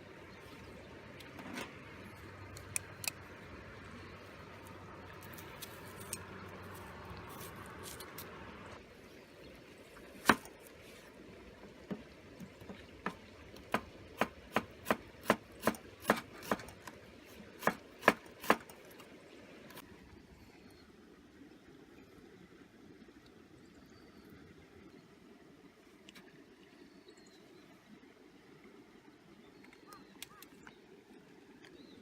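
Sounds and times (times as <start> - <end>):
sharp chopping strikes: 17.6 - 18.7.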